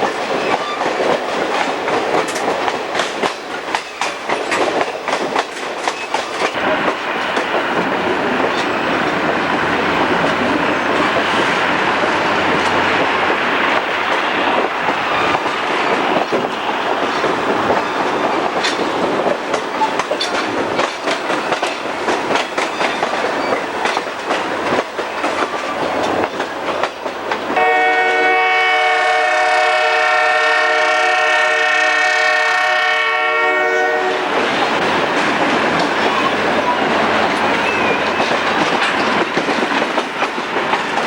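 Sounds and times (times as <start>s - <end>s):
wheels clicking over rails: 0.0s - 27.6s, 34.3s - 41.0s
train rushing along track: 0.0s - 41.0s
train horn chord: 27.6s - 34.4s.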